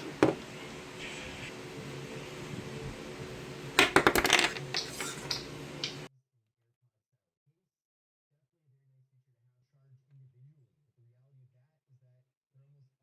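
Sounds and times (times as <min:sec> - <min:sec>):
small hard objects clinking: 0:03.8 - 0:06.1.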